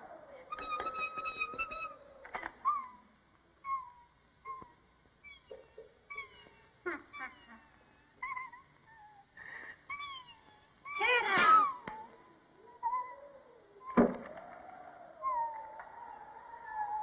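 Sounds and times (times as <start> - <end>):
whistled downward chirps: 0.0 - 6.6, 12.8 - 17.0.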